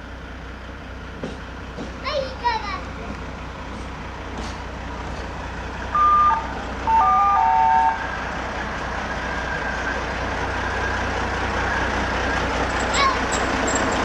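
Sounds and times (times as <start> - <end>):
diesel engine idling: 0.0 - 14.0
locomotive horn: 5.9 - 8.4.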